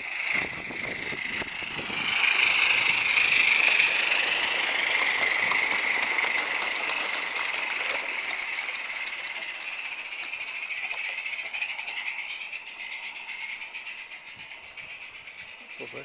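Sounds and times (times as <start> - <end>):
steam locomotive hissing and ticking: 0.0 - 16.0.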